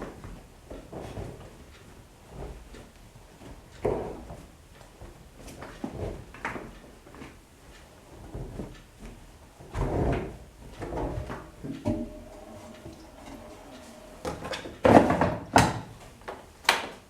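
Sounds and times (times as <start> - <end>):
washing machine knocking and swishing: 9.6 - 16.4.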